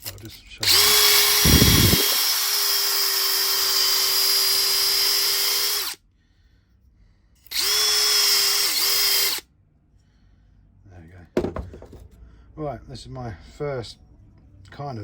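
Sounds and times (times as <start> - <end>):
drill whining: 0.6 - 6.0, 7.4 - 9.4.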